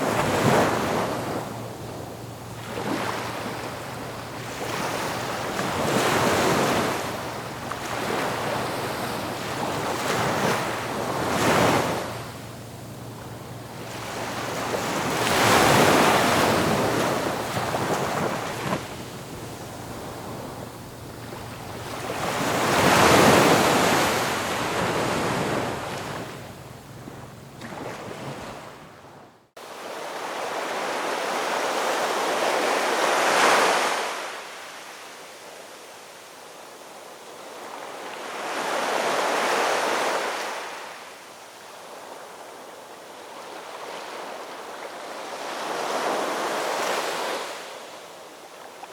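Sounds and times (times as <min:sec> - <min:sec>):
ocean waves breaking on shore: 0:00.0 - 0:48.9.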